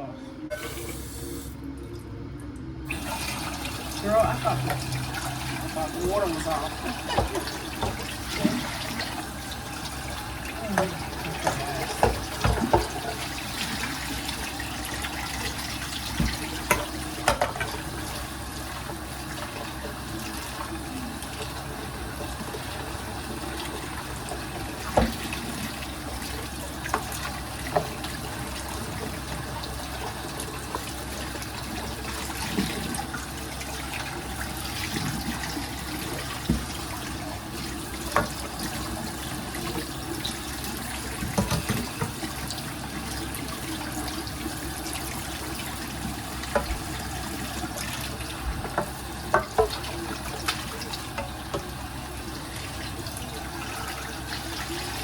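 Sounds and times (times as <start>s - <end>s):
water running from sink tap: 0.5s - 1.6s, 2.9s - 55.0s
kitchenware clinking in sink: 5.9s - 9.1s, 10.6s - 14.0s, 16.1s - 17.9s, 48.6s - 51.7s.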